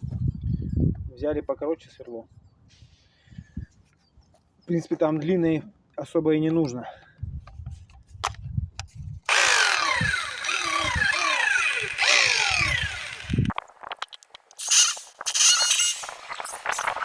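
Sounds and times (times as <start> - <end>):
electric drill boring into concrete: 9.3 - 13.6, 14.6 - 17.0.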